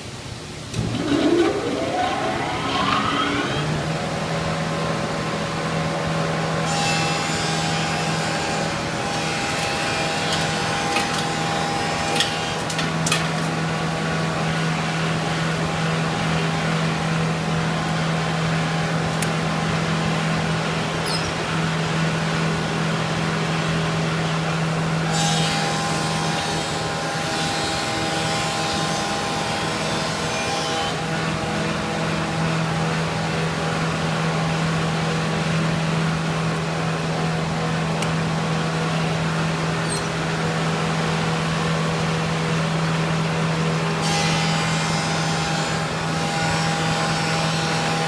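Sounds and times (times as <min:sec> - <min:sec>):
thickness planer motor running: 0:00.8 - 0:04.2.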